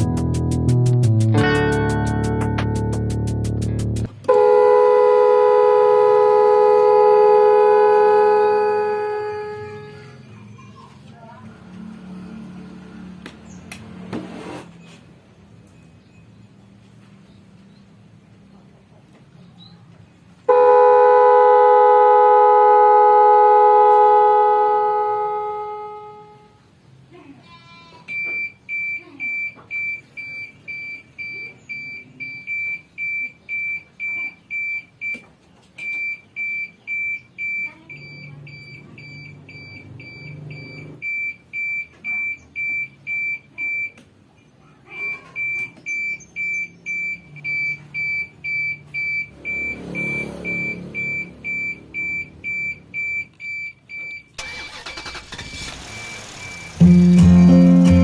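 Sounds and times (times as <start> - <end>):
horn blast: 4.3 - 10.2, 20.5 - 26.6, 56.2 - 58.0
truck reversing alarm beeping: 28.1 - 58.0.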